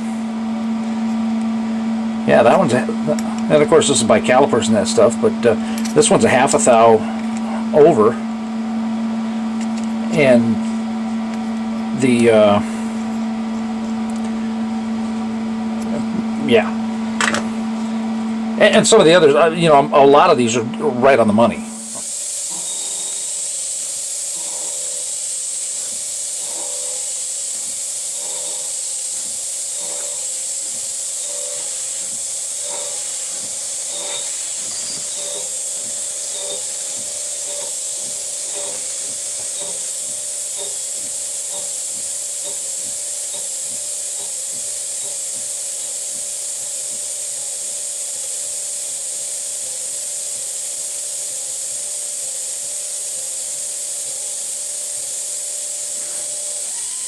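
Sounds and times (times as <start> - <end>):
cnc mill high hiss: 0.0 - 57.0
steady hum: 0.0 - 57.0
faint regular ticks: 22.0 - 47.3.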